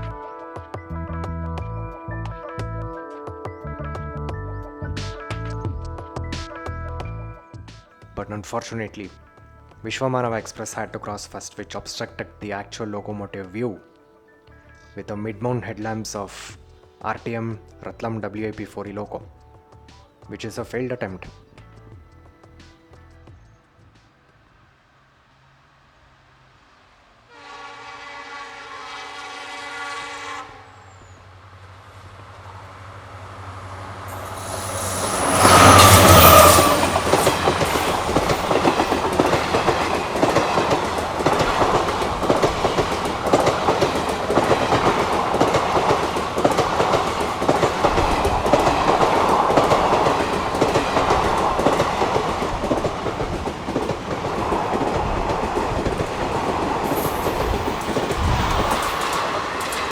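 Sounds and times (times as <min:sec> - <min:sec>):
train passing at speed: 0:25.0 - 0:59.9
train horn: 0:27.3 - 0:31.0, 0:32.2 - 0:48.6
wheels clattering over rail joints: 0:31.0 - 0:59.9.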